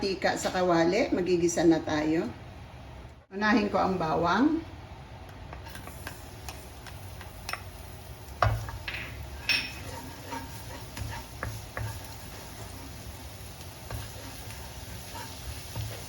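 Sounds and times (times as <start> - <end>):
garlic sizzling in oil: 5.6 - 16.0.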